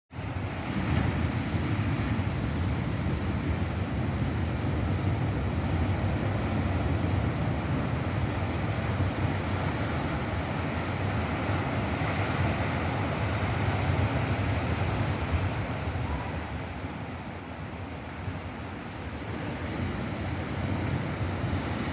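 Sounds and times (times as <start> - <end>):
ocean waves crashing: 0.1 - 21.9.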